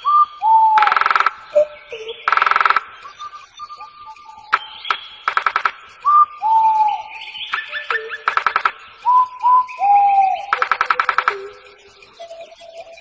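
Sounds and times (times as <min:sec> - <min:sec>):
birds whistling calls: 0:00.0 - 0:13.0
buzzy bird rattle: 0:00.8 - 0:01.6, 0:02.2 - 0:03.1, 0:04.5 - 0:06.0, 0:07.5 - 0:09.1, 0:10.5 - 0:12.2.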